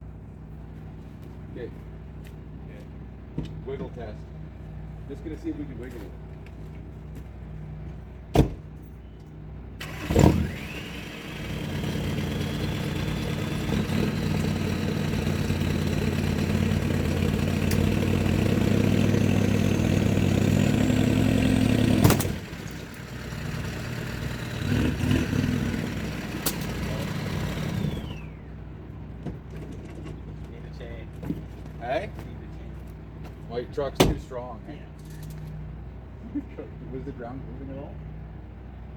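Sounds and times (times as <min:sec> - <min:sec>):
truck engine revving with whine: 0:09.8 - 0:28.6.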